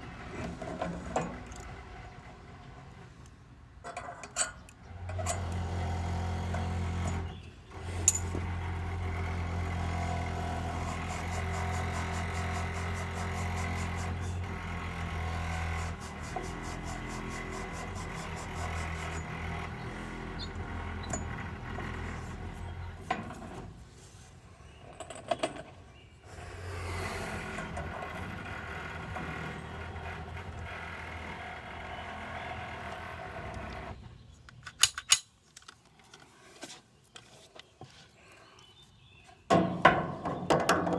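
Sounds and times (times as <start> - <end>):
hydraulic press tool running: 5.1 - 23.0.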